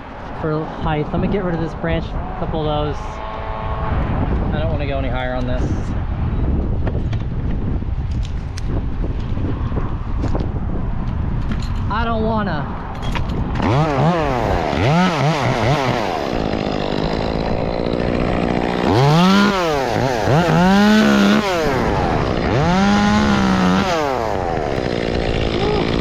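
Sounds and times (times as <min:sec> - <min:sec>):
chainsaw revving: 0:13.6 - 0:26.0.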